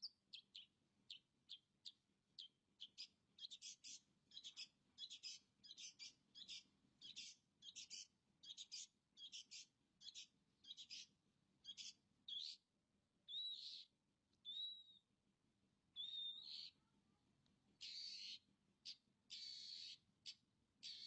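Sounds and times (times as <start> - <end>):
bird whistling: 13.3 - 15.0, 16.0 - 16.7, 19.3 - 20.0
bird harsh scratchy chirps: 17.8 - 18.4, 19.3 - 20.0.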